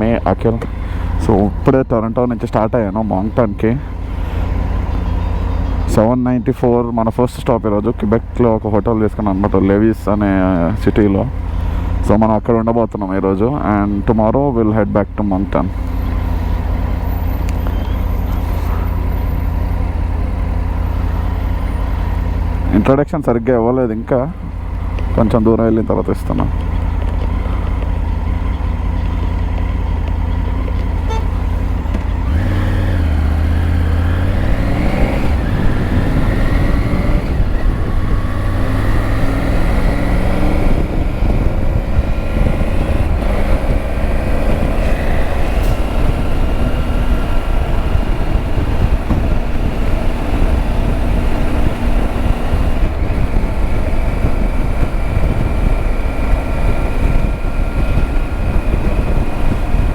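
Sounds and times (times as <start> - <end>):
motorcycle engine accelerating: 0.0 - 12.2, 15.2 - 22.9, 24.3 - 59.9
wind rumble on microphone: 24.3 - 59.9.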